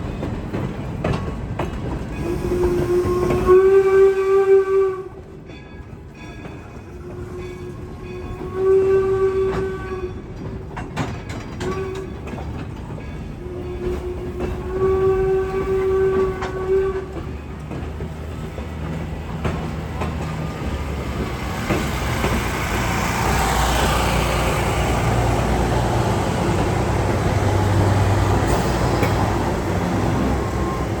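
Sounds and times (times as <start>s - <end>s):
train engine and wheels on rails: 0.0s - 31.0s
train whistle blasts: 2.2s - 5.2s, 6.9s - 10.2s, 13.4s - 17.2s.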